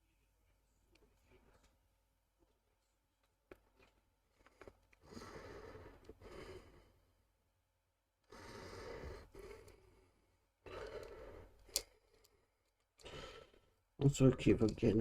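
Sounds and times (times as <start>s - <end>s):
soft breaths out: 8.3s - 13.8s.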